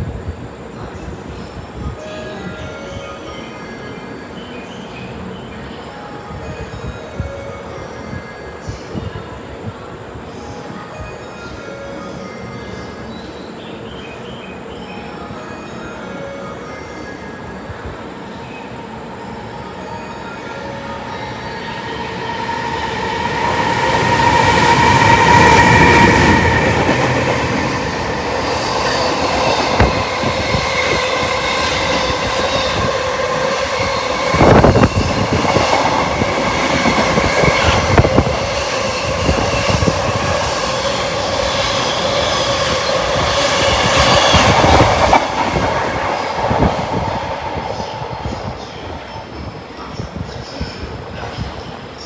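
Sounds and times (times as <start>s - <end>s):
train wheels clacking on rails: 19.8s - 49.1s.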